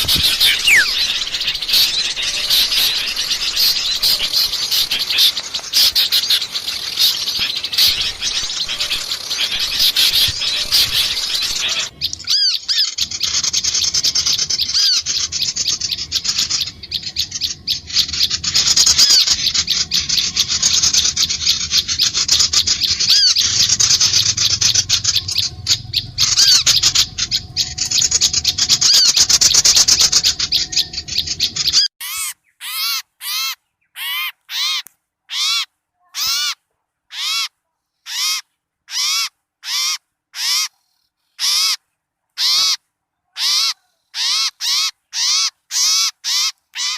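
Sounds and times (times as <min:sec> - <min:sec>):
harsh bird call repeated: 0:00.0 - 0:12.9
small birds chattering: 0:00.0 - 0:36.6.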